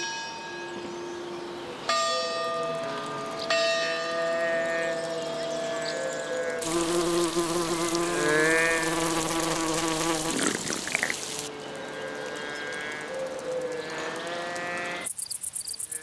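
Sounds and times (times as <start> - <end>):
water pouring from fountain: 6.6 - 15.0
insect wing buzz: 6.6 - 16.0.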